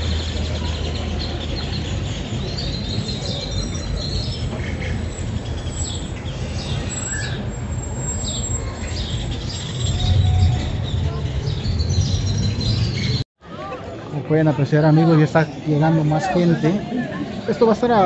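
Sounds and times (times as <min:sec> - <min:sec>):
birds chirping: 0:00.0 - 0:13.2
outdoor background noise: 0:00.0 - 0:18.0.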